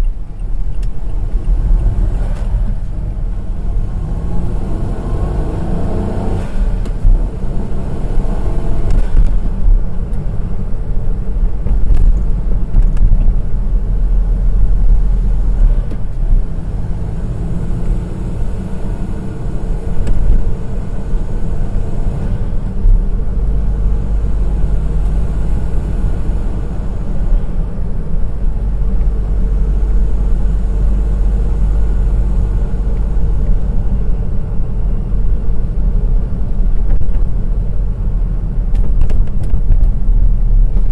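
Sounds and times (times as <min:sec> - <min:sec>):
car engine rumble: 0:00.0 - 0:40.9.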